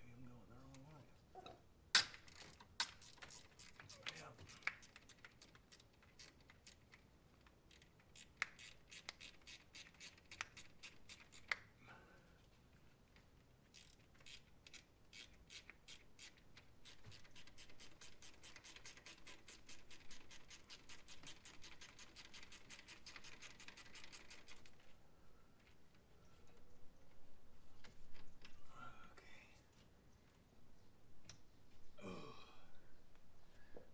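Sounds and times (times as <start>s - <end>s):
ratchet wrench clicking: 2.0s - 6.8s, 7.7s - 11.5s, 13.7s - 24.7s.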